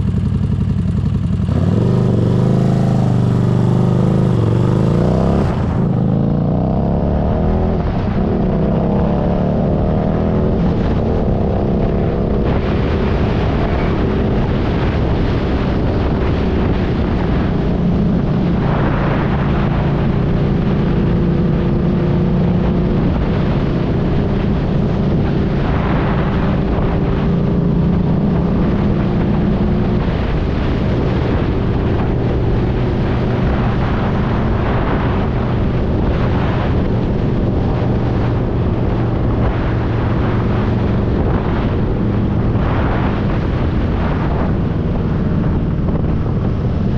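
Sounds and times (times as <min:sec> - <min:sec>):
motorcycle engine running: 0:00.0 - 0:46.9
wind and road noise: 0:00.0 - 0:46.9.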